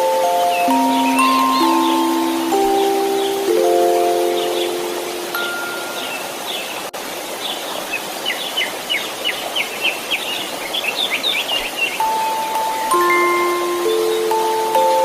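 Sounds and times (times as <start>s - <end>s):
small birds chirping: 0.0s - 15.0s
white noise hiss: 0.0s - 15.0s
soft chime note: 0.5s - 6.3s.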